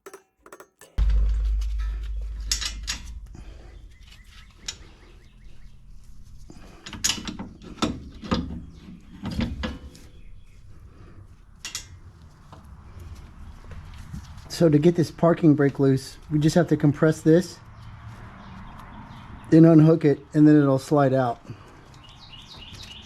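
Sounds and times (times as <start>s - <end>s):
metal clicks and clanks: 0.0s - 10.2s, 11.6s - 12.0s
low hum: 0.9s - 8.4s.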